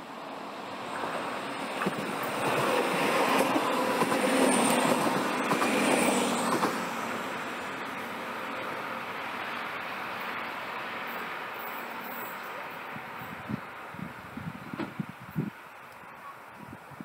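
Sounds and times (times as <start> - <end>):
train passing on track: 0.0 - 17.0.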